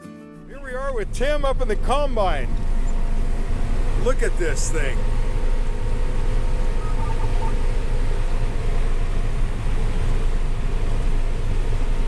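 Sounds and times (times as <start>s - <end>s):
combine harvester rumbling: 0.4s - 12.0s
faint short beeps: 6.8s - 8.2s.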